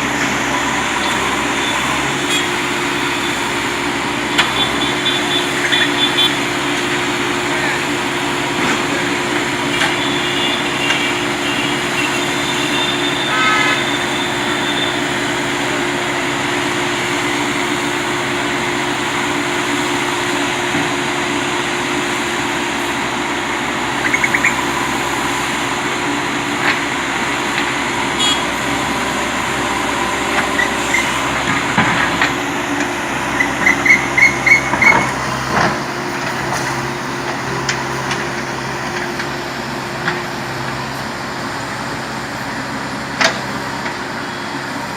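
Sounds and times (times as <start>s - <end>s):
heavy vehicle engine running: 0.0s - 44.9s.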